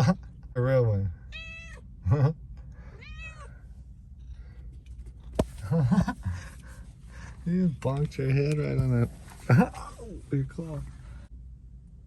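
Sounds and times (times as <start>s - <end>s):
cat meowing: 1.3s - 1.9s, 3.0s - 3.6s.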